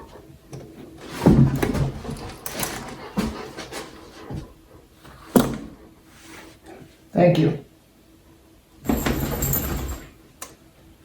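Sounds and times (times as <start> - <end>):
dog panting: 0.0 - 6.9.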